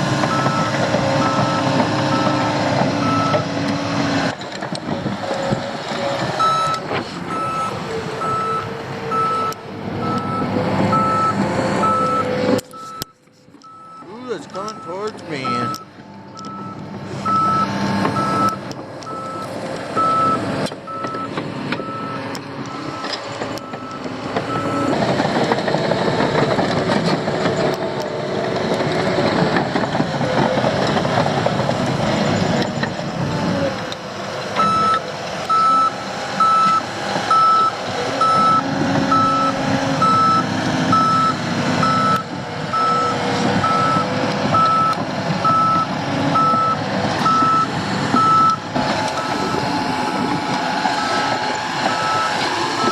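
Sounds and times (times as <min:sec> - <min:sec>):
heavy vehicle engine running: 0:00.0 - 0:52.9
reversing alarm beeping: 0:00.3 - 0:03.5, 0:06.4 - 0:25.0, 0:34.6 - 0:50.4, 0:51.0 - 0:52.9.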